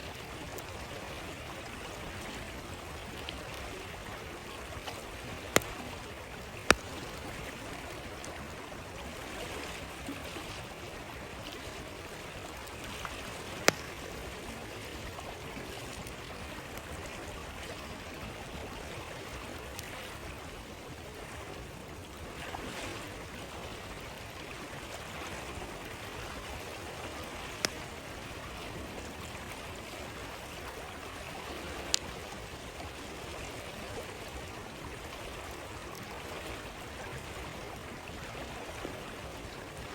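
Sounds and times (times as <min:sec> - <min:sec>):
stream flowing: 0:00.0 - 0:39.9
campfire popping: 0:02.5 - 0:09.2, 0:11.2 - 0:17.6, 0:27.1 - 0:28.3.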